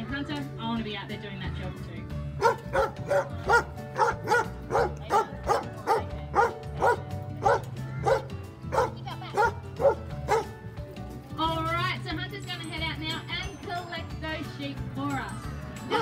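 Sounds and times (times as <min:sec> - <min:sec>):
dog barking: 0:02.4 - 0:10.5.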